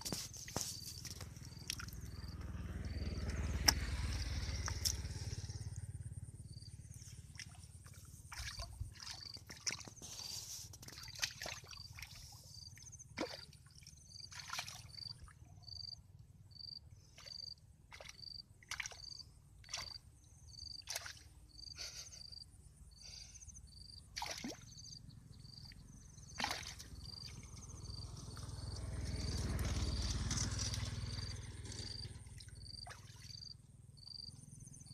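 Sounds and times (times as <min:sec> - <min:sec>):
water splashing: 0:07.2 - 0:12.6, 0:13.2 - 0:15.4, 0:17.9 - 0:20.0, 0:20.9 - 0:21.2, 0:24.2 - 0:24.6, 0:26.4 - 0:27.5.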